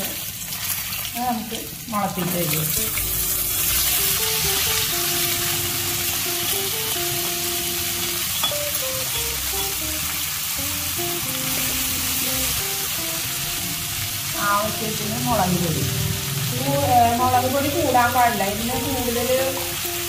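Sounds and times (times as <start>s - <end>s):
beans sizzling in a wok: 0.0s - 20.0s
simple background melody: 2.7s - 20.0s
steel spoon stirring: 8.0s - 8.8s.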